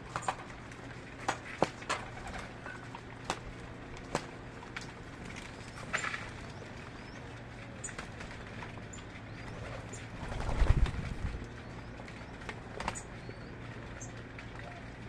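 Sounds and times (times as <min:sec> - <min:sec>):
steady low hum: 0:00.0 - 0:15.0
birds chirping: 0:05.4 - 0:15.0.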